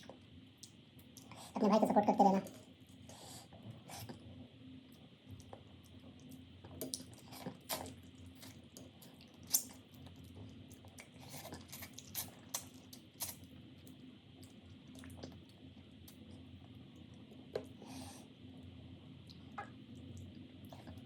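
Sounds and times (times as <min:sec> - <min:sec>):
person chewing and eating: 0:05.4 - 0:13.5.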